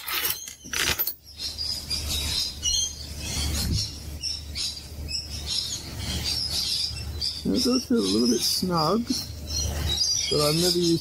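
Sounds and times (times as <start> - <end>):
birds chirping and calling: 0.0 - 11.0.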